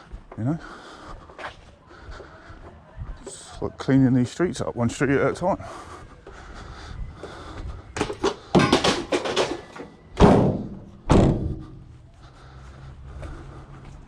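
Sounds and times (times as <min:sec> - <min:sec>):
junk clattering: 0:08.0 - 0:11.7
loud heavy thuds: 0:10.2 - 0:11.9.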